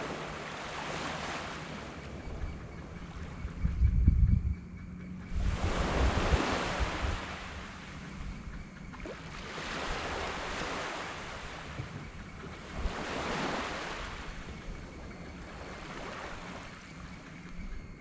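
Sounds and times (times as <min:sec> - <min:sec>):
waves breaking on beach: 0:00.0 - 0:02.1, 0:05.4 - 0:07.9, 0:09.0 - 0:11.9, 0:12.6 - 0:14.7.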